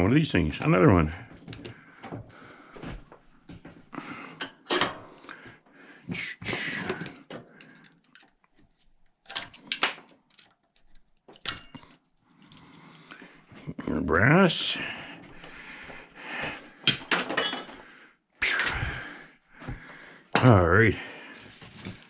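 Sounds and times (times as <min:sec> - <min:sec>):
scrap metal clinking: 0:10.3 - 0:12.8.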